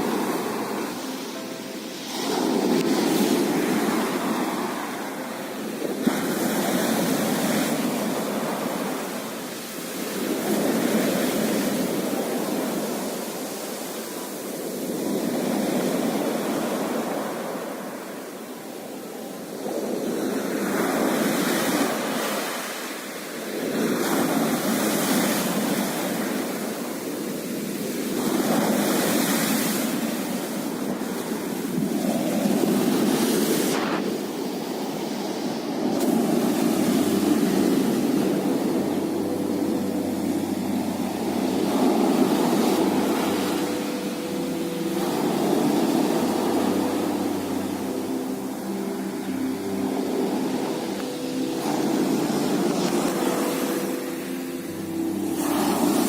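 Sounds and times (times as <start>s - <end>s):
sea waves breaking on shore: 0.0s - 56.0s.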